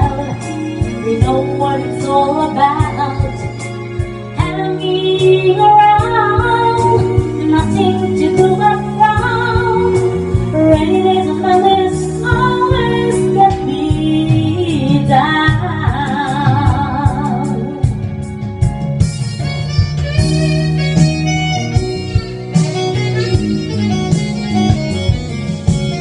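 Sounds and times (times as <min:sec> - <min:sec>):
woman singing a slow ballad: 0:00.0 - 0:18.2
instrumental accompaniment: 0:00.0 - 0:26.0.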